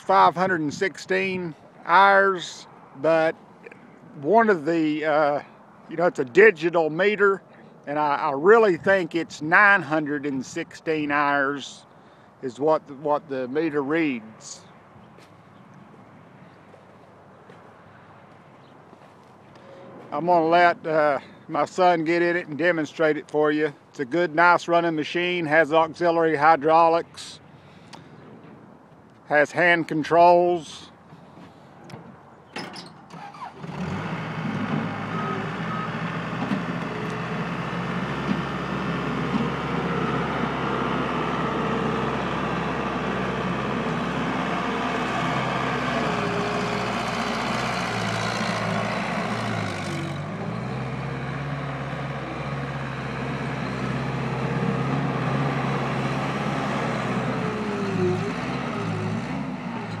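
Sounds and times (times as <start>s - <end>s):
diesel engine running: 33.1s - 60.0s.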